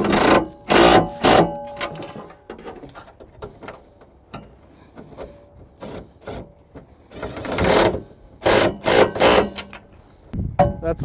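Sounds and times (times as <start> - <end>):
loud metal scraping: 5.2 - 9.9.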